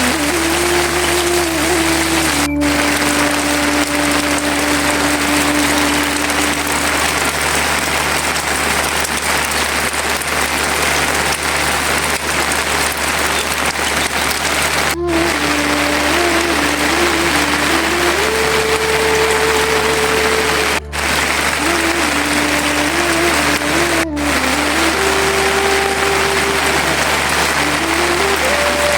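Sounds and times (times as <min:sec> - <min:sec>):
heavy rain falling: 0:00.0 - 0:28.9
steady hum: 0:14.7 - 0:28.9.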